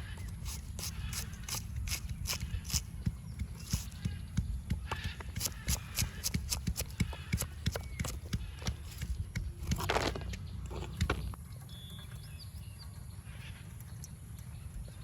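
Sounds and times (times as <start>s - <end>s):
scraping or rustling: 8.0s - 11.4s.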